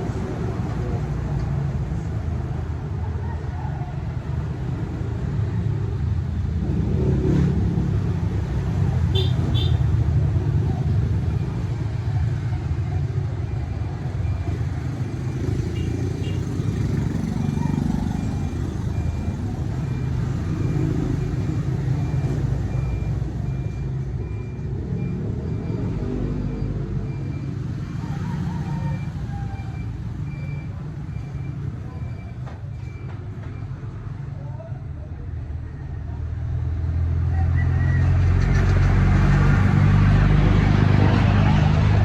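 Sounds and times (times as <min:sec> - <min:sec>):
road noise: 0:00.0 - 0:42.0
vehicle engine rumbling: 0:00.0 - 0:42.0
motorcycle engine rumble: 0:07.5 - 0:23.2.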